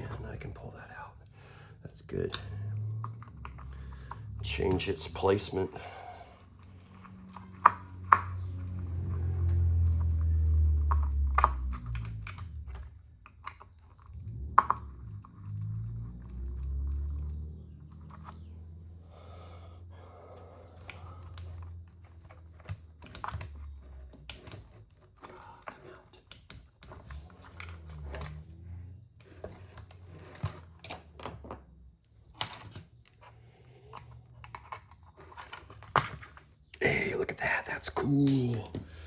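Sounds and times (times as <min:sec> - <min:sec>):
light clicks and taps of parts: 0:20.8 - 0:28.4, 0:29.2 - 0:36.8.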